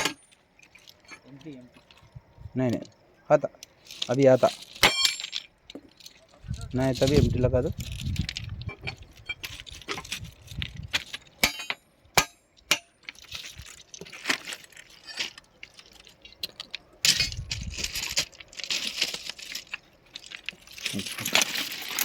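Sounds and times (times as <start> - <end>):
metal tools clinking on rail: 0.0 - 2.1, 3.6 - 22.0
scraping and rattling: 3.7 - 11.8, 12.8 - 22.0.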